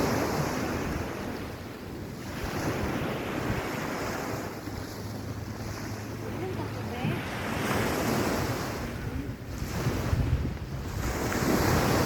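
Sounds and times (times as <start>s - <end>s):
sea waves washing on beach: 0.0s - 12.0s
wind buffeting microphone: 0.0s - 12.0s.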